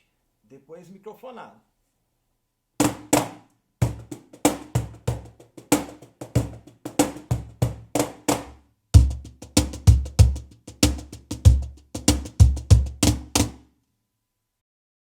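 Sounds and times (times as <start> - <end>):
cajon played by hand: 2.8 - 13.6.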